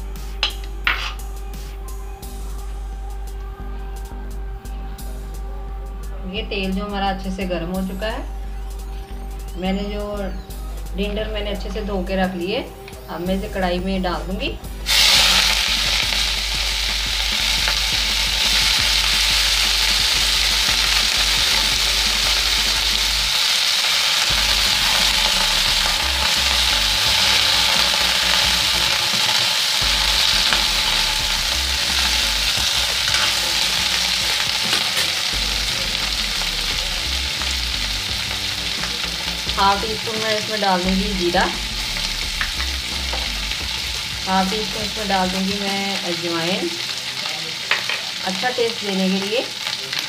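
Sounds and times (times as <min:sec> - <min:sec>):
vegetables sizzling in hot oil: 0:00.0 - 0:02.4, 0:07.8 - 0:50.0
water spitting in oil: 0:14.8 - 0:39.9.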